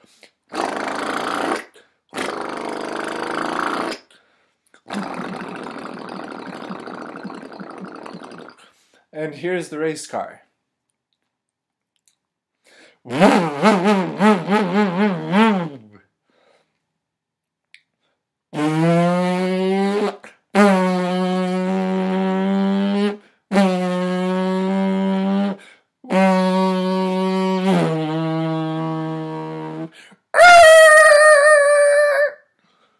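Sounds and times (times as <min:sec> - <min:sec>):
person imitating race car: 0:04.9 - 0:08.6, 0:30.4 - 0:32.4.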